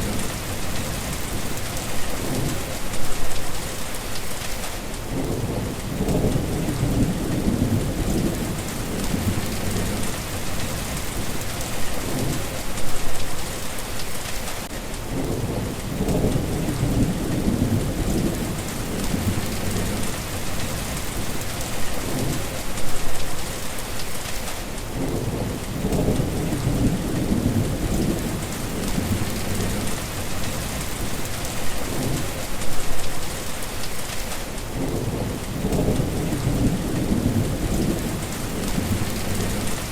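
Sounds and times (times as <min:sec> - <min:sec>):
steady rain hissing: 0:00.0 - 0:39.9
rolling thunder: 0:05.1 - 0:13.2, 0:15.1 - 0:23.2, 0:24.9 - 0:33.1, 0:34.1 - 0:39.9.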